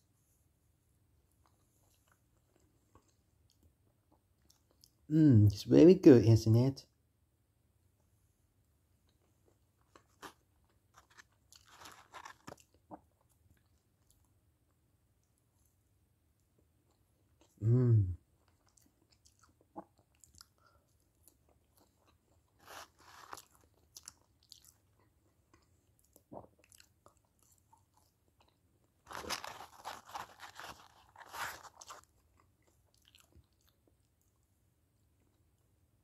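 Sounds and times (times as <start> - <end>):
person chewing and crunching: 1.4 - 5.1, 9.0 - 14.4, 16.6 - 34.4.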